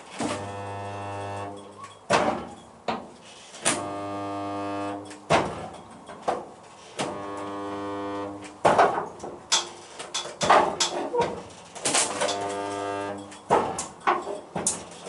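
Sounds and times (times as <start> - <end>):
spot welder buzzing: 0.2 - 1.7, 3.6 - 5.2, 7.0 - 8.6, 11.9 - 13.4.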